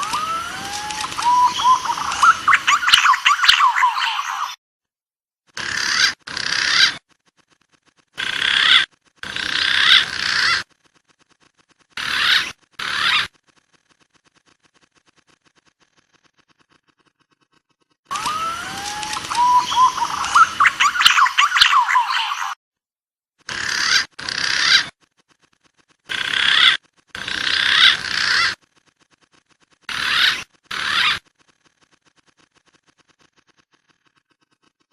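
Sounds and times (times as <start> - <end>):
pigeon and dove calls: 0.0 - 4.6, 18.1 - 22.6.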